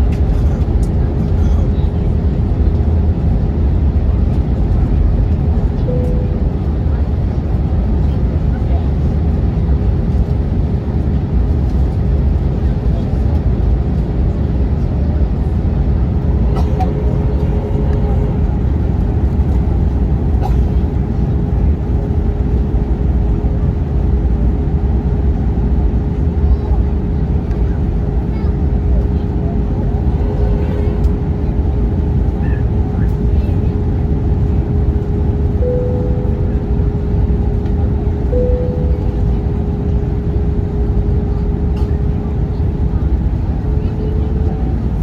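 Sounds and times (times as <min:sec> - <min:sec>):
airliner cabin roar: 0:00.0 - 0:45.0
short cabin tones: 0:16.2 - 0:19.7, 0:35.6 - 0:40.5.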